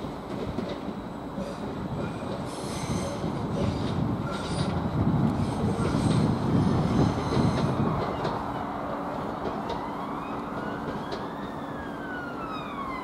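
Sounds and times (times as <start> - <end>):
electric train rumble on rails: 0.0 - 13.0
emergency vehicle siren wailing: 9.6 - 13.0.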